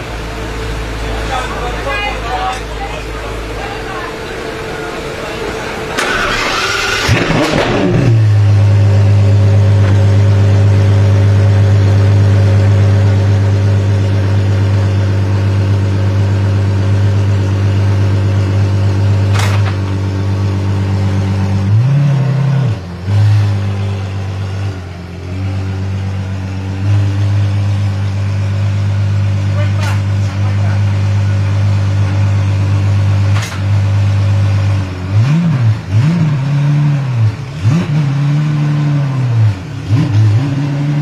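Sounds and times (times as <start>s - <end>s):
car engine idling loudly: 0.0s - 36.2s
engine throttle blips: 0.0s - 41.0s
sharp click: 19.3s - 19.8s, 33.3s - 33.7s.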